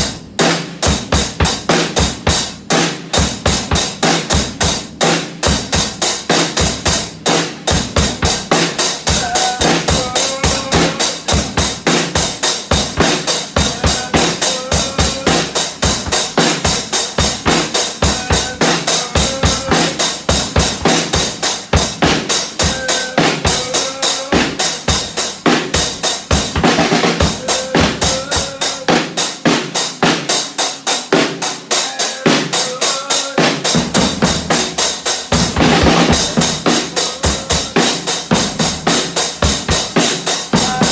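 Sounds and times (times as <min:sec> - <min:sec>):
drum kit fast beat: 0:00.0 - 0:40.9.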